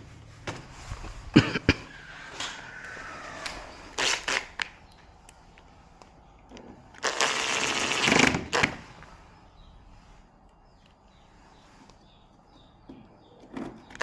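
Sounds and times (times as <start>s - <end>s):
scraping rustling noise: 0.0s - 4.6s.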